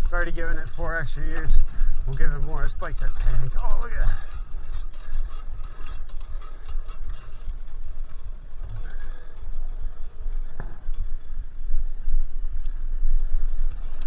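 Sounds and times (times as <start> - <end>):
bicycle ticking and rattling: 0.0 - 14.0
wind rumble on microphone: 0.0 - 14.0.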